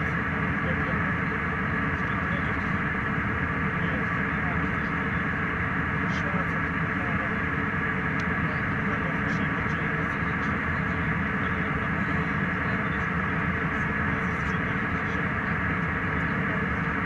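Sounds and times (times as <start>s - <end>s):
airliner cabin hum: 0.0s - 17.0s
faint steady whine: 0.0s - 17.0s.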